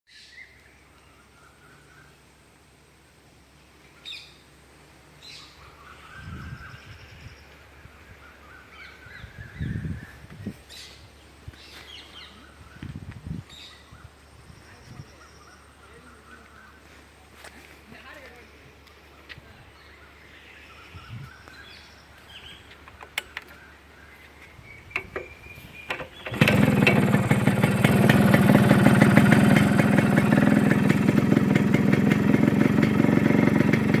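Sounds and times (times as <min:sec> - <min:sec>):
birds calling: 0:00.1 - 0:02.4, 0:03.8 - 0:34.0
motorcycle engine running: 0:25.9 - 0:34.0.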